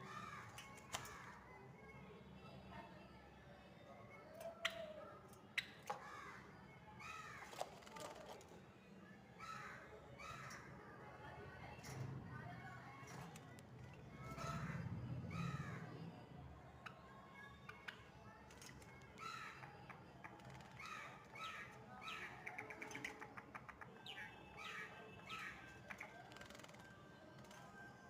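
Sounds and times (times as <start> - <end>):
sparrow chirping faintly: 16.8 - 28.0.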